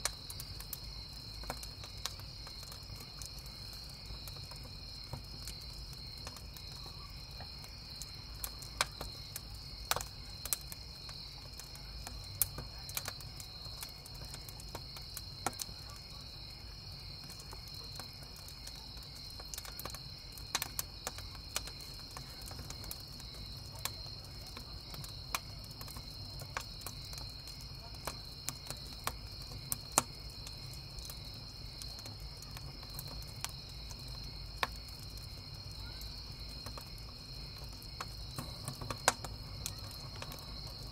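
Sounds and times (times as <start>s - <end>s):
campfire crackling: 0.0s - 40.9s
crickets chirping: 0.0s - 40.9s.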